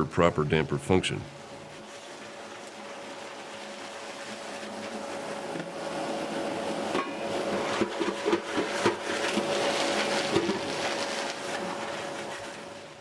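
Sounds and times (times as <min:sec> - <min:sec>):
steady hum: 0:00.0 - 0:13.0
fireplace damper clanking: 0:06.8 - 0:11.0.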